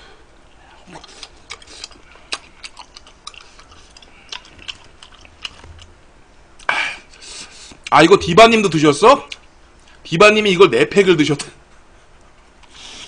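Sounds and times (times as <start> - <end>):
man chewing food: 0.4 - 8.0, 9.2 - 10.0.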